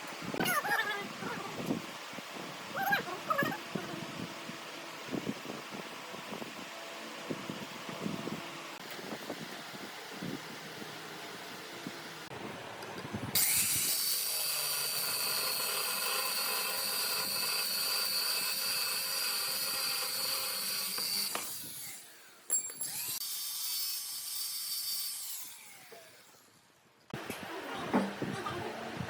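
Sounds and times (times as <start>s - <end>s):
power tool whining: 13.3s - 26.5s.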